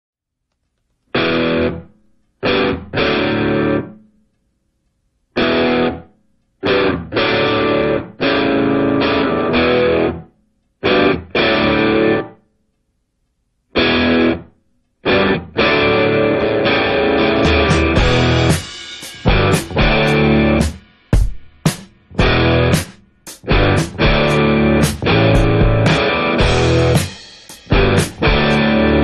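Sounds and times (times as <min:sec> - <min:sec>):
distorted electric guitar stabs: 0:01.1 - 0:04.0, 0:05.4 - 0:12.4, 0:13.8 - 0:29.0.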